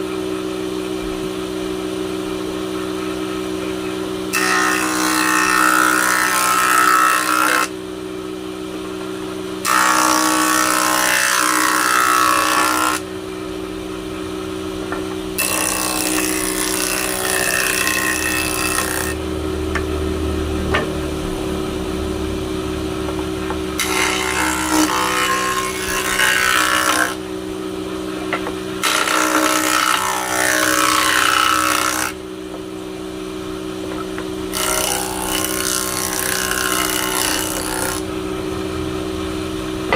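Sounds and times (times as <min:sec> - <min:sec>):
power tool cutting wood: 0:04.3 - 0:07.8, 0:09.6 - 0:13.1, 0:14.9 - 0:27.3, 0:28.2 - 0:32.2, 0:33.9 - 0:38.9.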